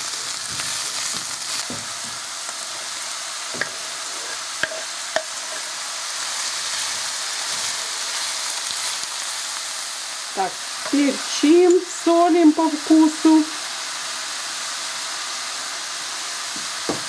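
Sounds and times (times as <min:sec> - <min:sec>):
food sizzling in frying pan: 0:00.0 - 0:17.0
wooden knocks against pan: 0:16.6 - 0:17.0.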